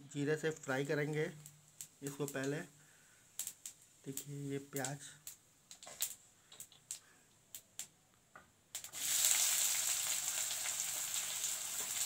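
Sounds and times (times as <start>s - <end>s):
onion sizzling in hot oil: 8.8s - 12.0s.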